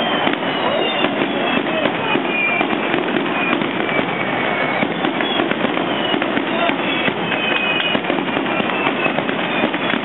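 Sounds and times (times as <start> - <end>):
fireworks crackling: 0.0 - 10.0
fireworks whistling: 0.0 - 10.0.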